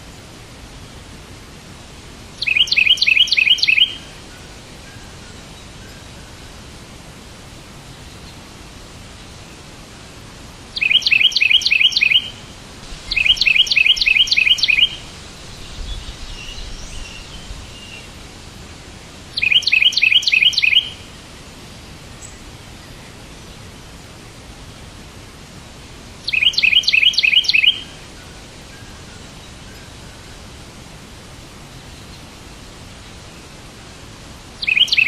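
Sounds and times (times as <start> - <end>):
steady hiss: 0.0 - 35.0
songbird trilling chirps: 2.4 - 6.5, 10.8 - 18.2, 19.3 - 21.1, 26.2 - 30.4, 34.6 - 35.0.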